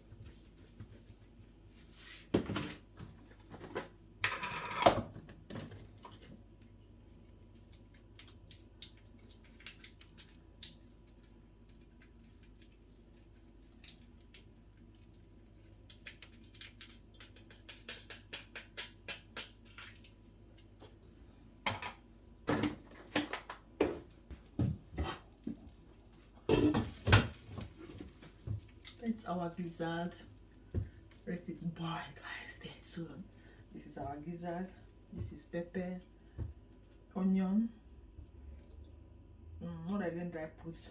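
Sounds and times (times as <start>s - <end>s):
pots and utensils clinking: 26.5s - 27.3s.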